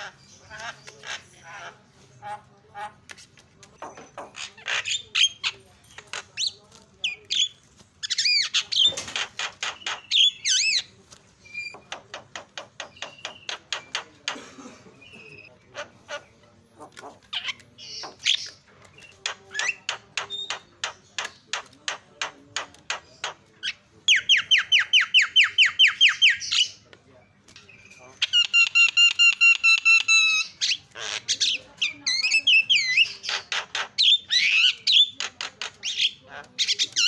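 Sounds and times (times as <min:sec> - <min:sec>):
myna calling: 0:15.1 - 0:21.7.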